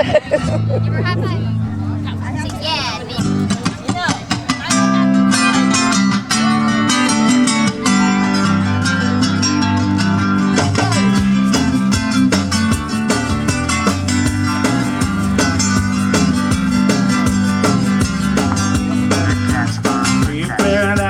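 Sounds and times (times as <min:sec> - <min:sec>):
bass notes: 0:00.0 - 0:21.0
strummed acoustic guitar: 0:00.1 - 0:21.0.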